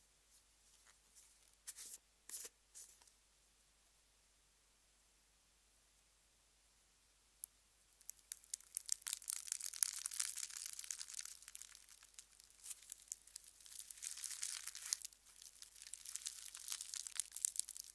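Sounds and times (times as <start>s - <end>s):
slime crackling and popping: 8.0s - 17.9s.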